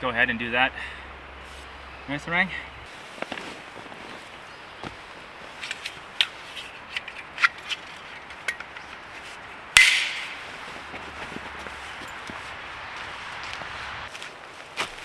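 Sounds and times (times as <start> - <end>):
loud sharp stick crack: 9.8 - 10.8
sticks snapping and crunching: 9.8 - 11.5.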